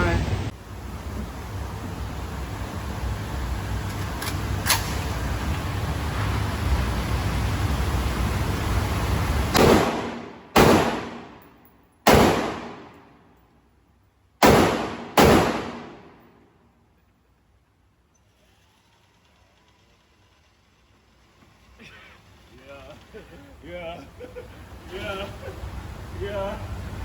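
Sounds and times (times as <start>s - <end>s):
steady background noise: 0.0s - 27.0s
pistol gunshots with echo: 9.6s - 11.5s, 12.1s - 13.1s, 14.4s - 16.3s.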